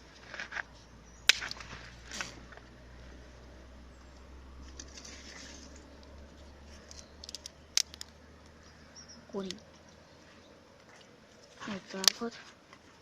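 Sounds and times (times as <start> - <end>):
rustling and crackle of fire: 0.0 - 8.7.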